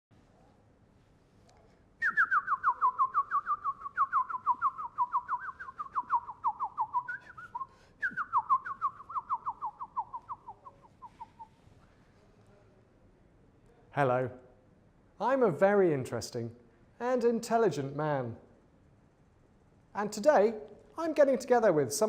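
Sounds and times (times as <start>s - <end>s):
whistled bird-like call: 2.0s - 11.6s.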